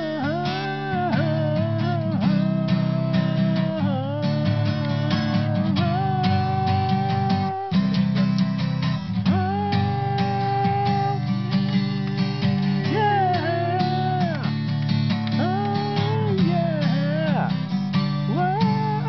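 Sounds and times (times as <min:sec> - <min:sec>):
guitar melody with bending notes: 0:00.0 - 0:19.0
strummed guitar chords: 0:00.0 - 0:19.0.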